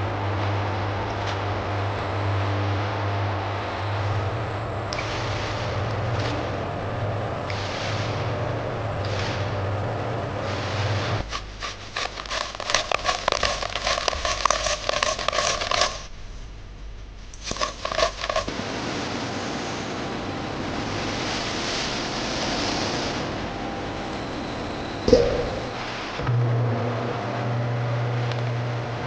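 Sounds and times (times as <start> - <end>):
factory machinery running: 0.0 - 11.3.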